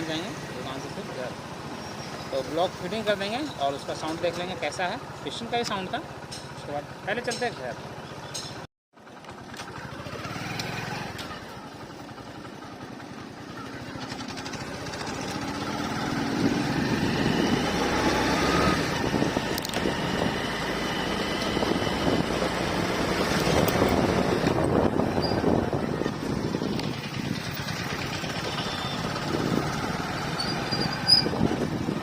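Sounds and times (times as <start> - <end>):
road and wind noise: 0.0 - 32.0
motorcycle engine accelerating: 9.0 - 32.0.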